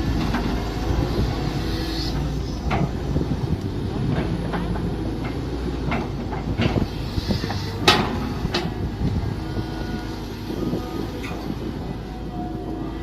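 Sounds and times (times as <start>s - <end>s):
excavator engine running: 0.0s - 13.0s
knocks and clanks of machine: 4.0s - 6.9s, 7.8s - 8.8s.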